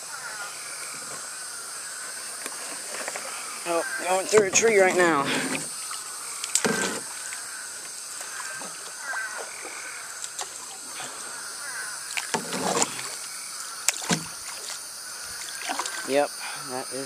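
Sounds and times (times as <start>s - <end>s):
frogs calling: 0.0s - 17.0s
canoe paddle splashing in water: 2.6s - 16.1s
paddle knocks: 13.9s - 14.3s.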